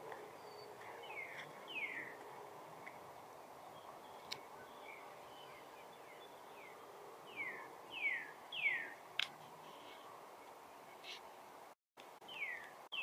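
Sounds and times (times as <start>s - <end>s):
songbird whistling: 7.3s - 9.0s, 12.3s - 13.0s.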